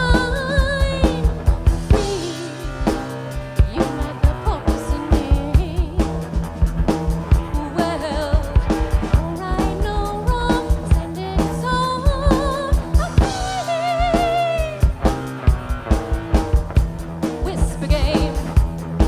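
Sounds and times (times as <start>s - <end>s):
person singing: 0.0s - 6.3s, 7.5s - 15.2s, 17.4s - 18.6s
drum kit beat: 0.0s - 19.0s
live rock band playing: 0.0s - 19.0s.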